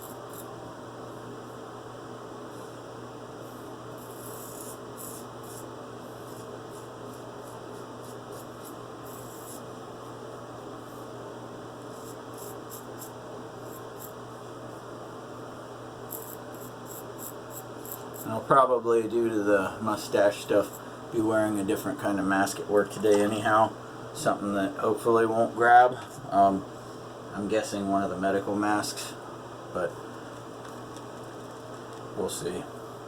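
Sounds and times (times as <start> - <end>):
steady electrical hum: 0.0 - 33.0
razor scraping stubble: 4.0 - 9.7, 11.9 - 14.2, 16.1 - 18.4.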